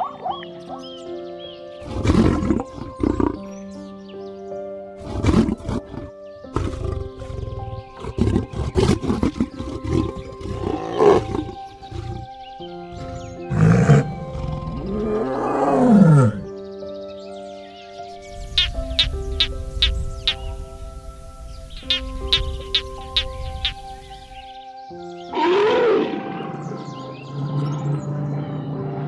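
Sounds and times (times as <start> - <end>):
background music with held notes: 0.0 - 29.0
loud animal calls: 18.4 - 24.5.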